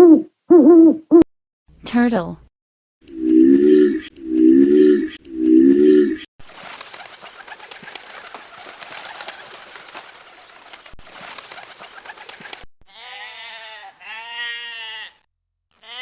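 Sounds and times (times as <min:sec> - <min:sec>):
birds calling: 0:06.8 - 0:12.5.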